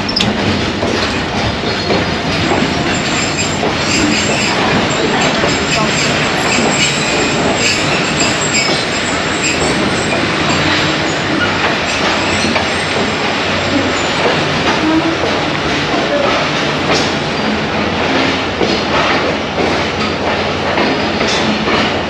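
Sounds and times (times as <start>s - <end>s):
train wheels rumbling on rails: 0.0s - 22.0s
wheels clacking over rail joints: 0.0s - 22.0s
high wheel squeals: 2.9s - 14.2s.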